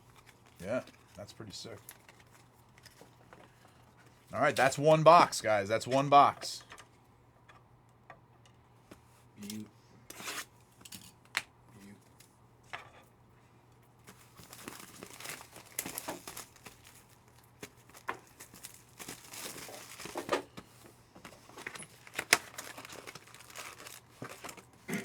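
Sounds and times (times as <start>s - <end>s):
plastic wrappers crinkling and tearing: 0.0s - 3.7s, 14.0s - 20.5s, 21.3s - 24.8s.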